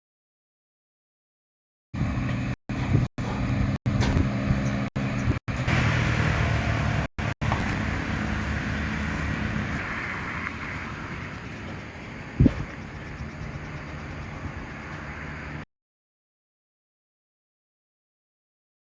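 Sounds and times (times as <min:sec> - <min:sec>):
vehicle engine running: 0:02.0 - 0:15.6
road traffic noise: 0:02.0 - 0:15.7.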